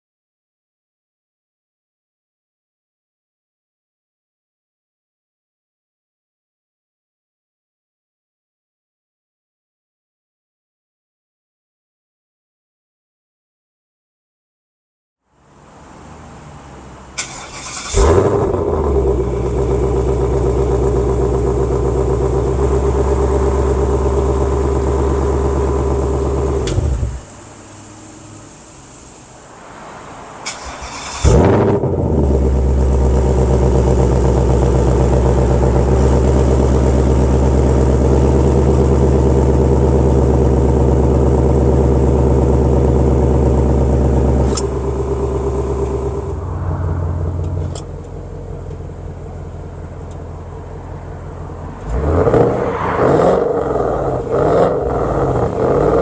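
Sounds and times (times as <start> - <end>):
car engine idling: 15.3 - 56.0
engine starting with a flare: 17.1 - 20.5, 26.1 - 29.4, 30.4 - 33.6, 44.4 - 46.7.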